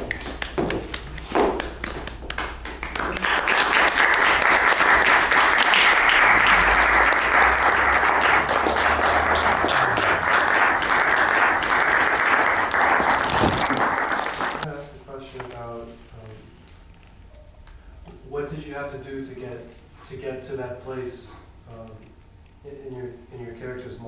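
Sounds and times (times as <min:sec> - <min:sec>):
audience applauding: 0:00.0 - 0:14.7.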